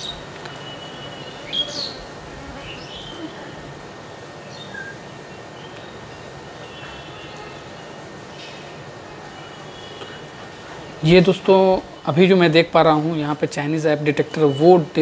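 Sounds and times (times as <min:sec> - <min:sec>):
birds chirping: 0:00.0 - 0:10.4
low background noise: 0:00.0 - 0:15.0.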